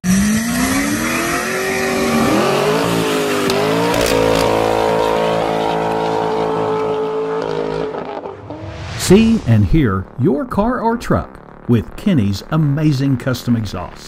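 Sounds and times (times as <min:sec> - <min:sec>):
car engine revving hard: 0:00.0 - 0:08.7
tires squealing: 0:00.2 - 0:08.8.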